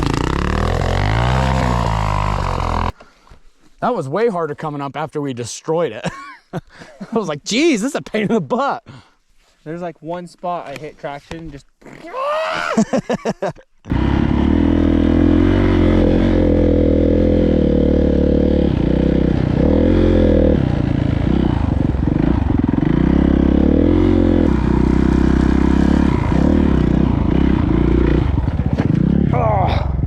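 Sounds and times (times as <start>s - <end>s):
dirt bike engine revving: 0.0s - 3.0s, 13.9s - 29.3s.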